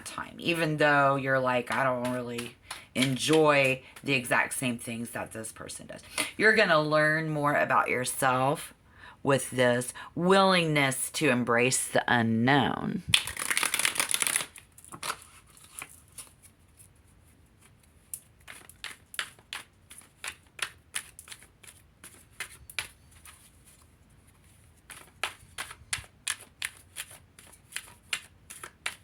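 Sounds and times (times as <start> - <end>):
cards shuffled by hand: 1.4 - 4.3, 13.1 - 29.0
card flicks and taps: 18.5 - 21.5, 22.3 - 23.0, 24.9 - 29.0.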